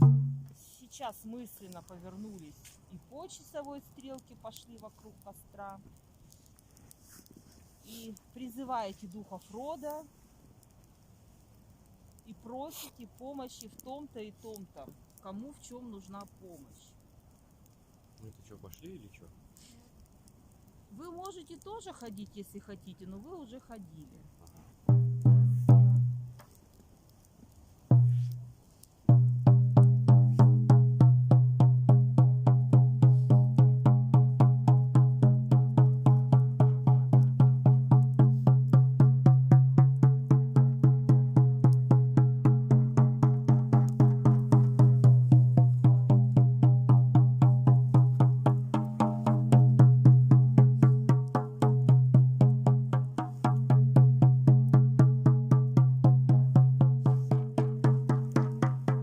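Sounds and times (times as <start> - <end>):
frame drum beaten fast: 0.0 - 0.5, 24.9 - 26.2, 29.1 - 59.0.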